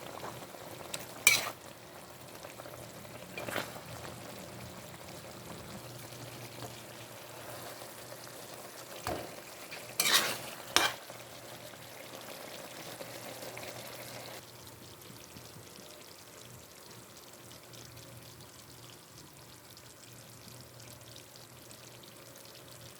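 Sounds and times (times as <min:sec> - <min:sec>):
sharp stirring clatters: 0:00.0 - 0:01.6, 0:09.0 - 0:11.0
food sizzling in a pan: 0:00.0 - 0:20.0.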